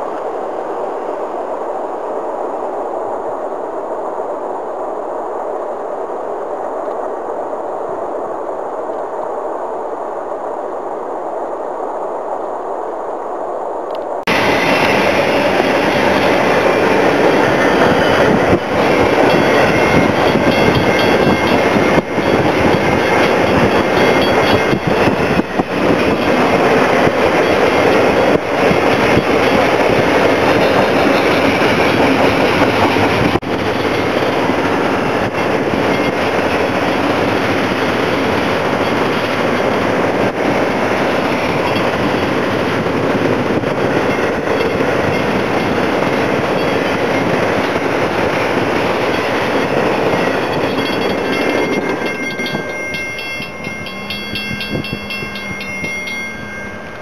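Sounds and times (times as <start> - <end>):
freight train wheels rumbling on rail: 13.9 - 57.0
level crossing bell ringing: 50.3 - 57.0.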